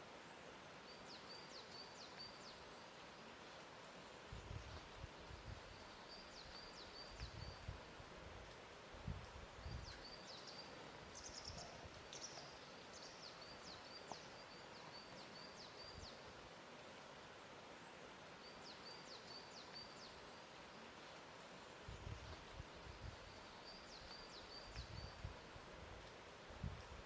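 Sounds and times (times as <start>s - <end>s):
steady low hiss: 0.0s - 27.0s
small birds chirping: 4.3s - 7.7s, 9.5s - 16.5s, 17.8s - 27.0s.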